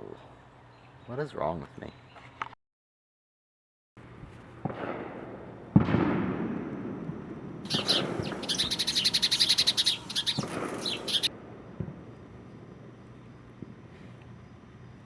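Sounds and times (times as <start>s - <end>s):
sudden thumps with a rush: 7.7s - 8.9s
bird chirping rapidly: 7.7s - 11.3s.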